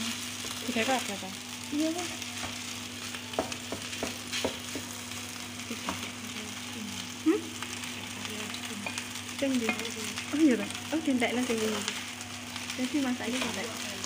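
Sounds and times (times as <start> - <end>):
rice and egg sizzling in a pan: 0.0 - 14.0.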